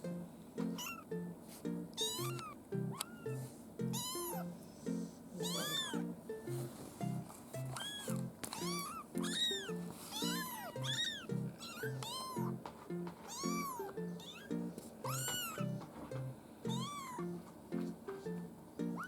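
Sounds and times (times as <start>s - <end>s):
light background music: 0.0s - 19.0s
kitten mewing: 0.7s - 1.0s, 2.0s - 4.6s, 5.4s - 6.2s, 7.8s - 12.6s, 13.3s - 15.8s, 16.7s - 17.3s.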